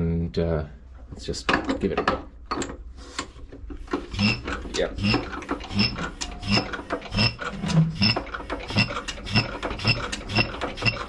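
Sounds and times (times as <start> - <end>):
hand crank clicking and rubbing: 2.6 - 11.0.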